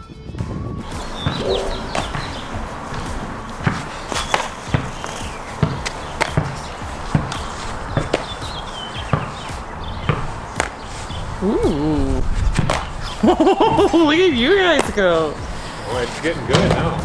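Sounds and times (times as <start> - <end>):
sharp knocks and thuds: 0.8 - 11.8
bird chirps: 0.8 - 16.4.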